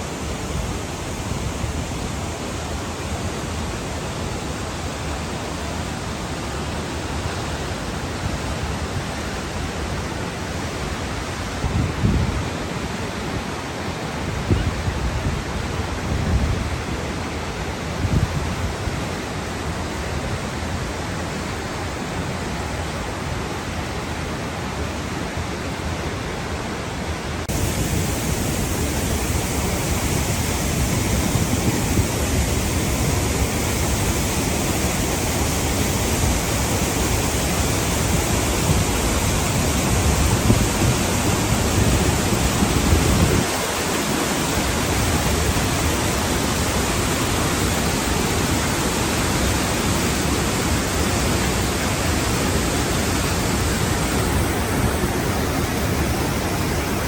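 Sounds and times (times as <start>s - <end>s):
waterfall roar: 0.0s - 57.0s.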